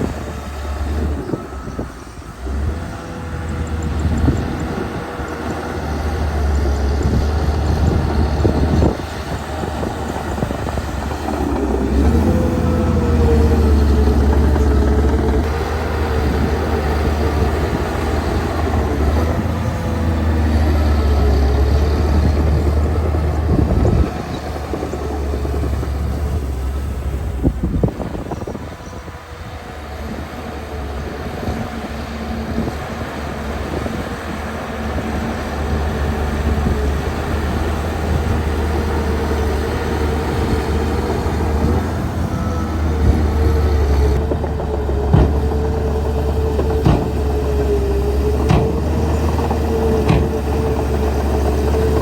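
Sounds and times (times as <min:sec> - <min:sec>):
diesel engine working under load: 0:00.0 - 0:52.0.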